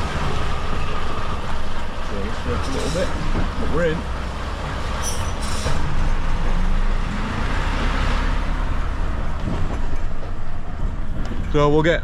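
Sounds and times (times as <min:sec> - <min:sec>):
lorry diesel engine running: 0:00.0 - 0:12.0.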